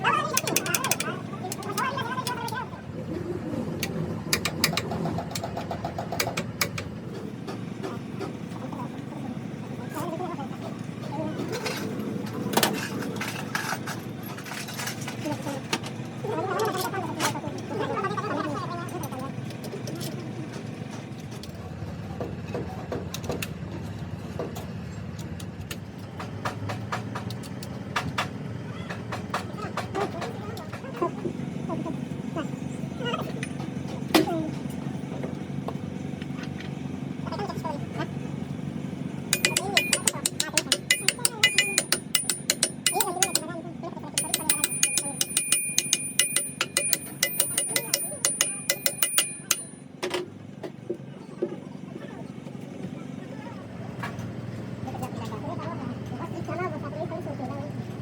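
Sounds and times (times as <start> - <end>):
low mechanical drone: 0.0 - 14.7
sharp clicks and taps: 0.4 - 1.8, 39.4 - 43.4, 44.2 - 49.8.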